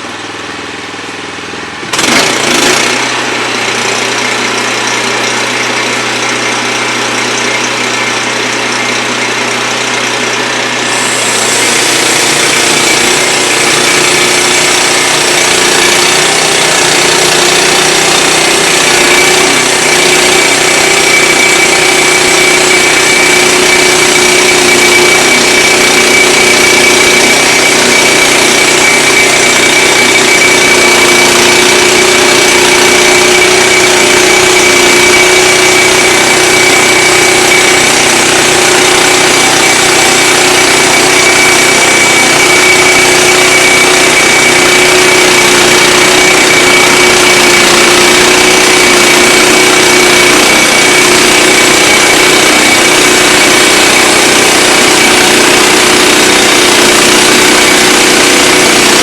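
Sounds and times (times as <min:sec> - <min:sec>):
band sawmill sawing a log: 0:00.0 - 0:59.0
steady high whine: 0:17.7 - 0:47.3.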